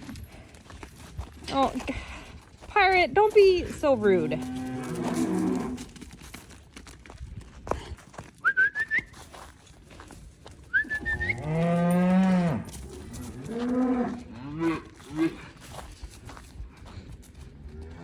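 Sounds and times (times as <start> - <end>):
calves mooing: 4.2 - 5.9, 11.0 - 15.4
high whistle-like chirps: 8.4 - 9.2, 10.7 - 11.4.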